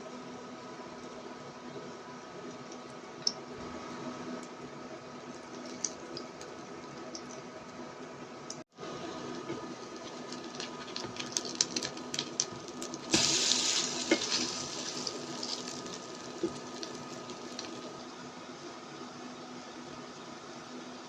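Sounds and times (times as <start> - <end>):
tap water rushing: 12.4 - 18.0.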